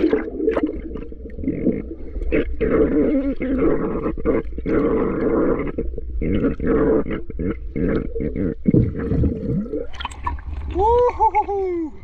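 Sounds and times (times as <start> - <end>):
underwater bubbling gurgles: 0.0 - 12.0
water rushing past microphone: 7.9 - 12.0.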